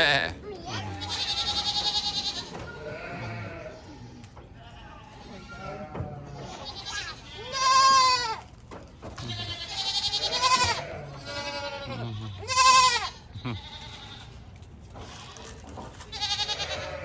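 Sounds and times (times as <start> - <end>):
goats bleating: 0.0 - 8.6, 9.2 - 17.0.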